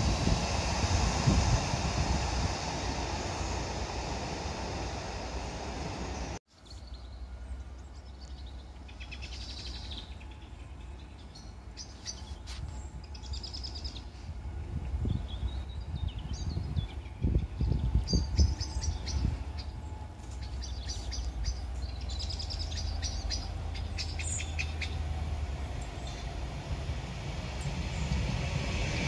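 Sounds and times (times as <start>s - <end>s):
train rumbling: 0.0s - 29.0s
small birds chirping: 7.8s - 14.2s, 15.1s - 26.5s.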